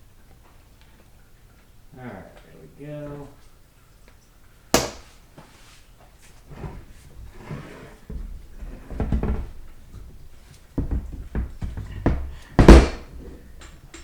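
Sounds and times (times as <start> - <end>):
metal parts and tools clunking: 12.7 - 14.0.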